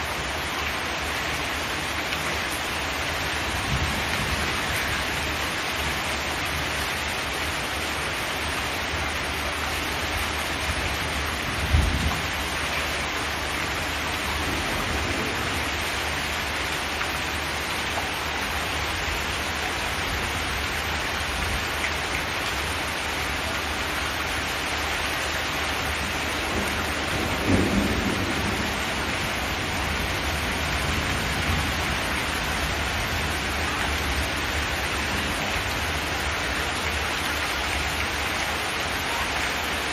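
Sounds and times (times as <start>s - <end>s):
rain drumming on metal roof: 0.0s - 39.9s.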